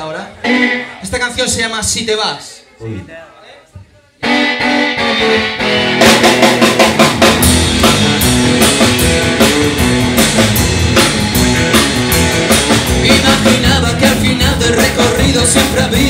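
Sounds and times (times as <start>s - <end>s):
rock band playing live: 0.3s - 1.7s, 4.2s - 16.0s
guitar chords: 0.4s - 1.0s, 4.2s - 16.0s
drum kit: 4.2s - 16.0s.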